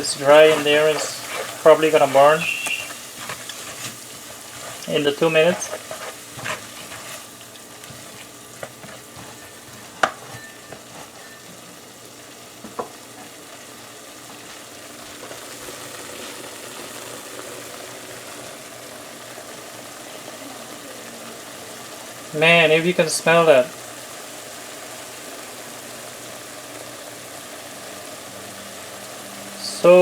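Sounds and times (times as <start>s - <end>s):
onions sizzling in hot oil: 0.0s - 30.0s
utensil knocking on pan: 8.6s - 11.4s.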